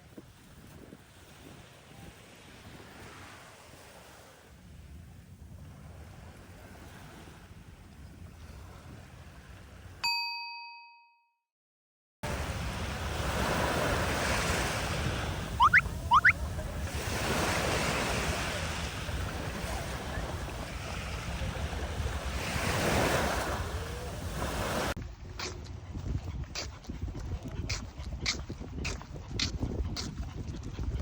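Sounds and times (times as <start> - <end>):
wind rumbling on microphone: 0.0 - 10.0, 12.3 - 31.0
short rising whistles: 15.6 - 16.4.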